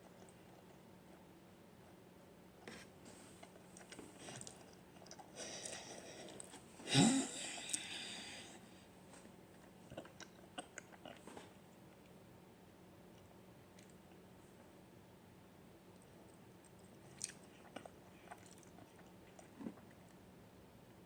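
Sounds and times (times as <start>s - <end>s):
person chewing noodles: 0.0s - 2.0s, 3.3s - 6.6s, 7.3s - 8.4s, 9.5s - 12.1s, 16.0s - 20.2s.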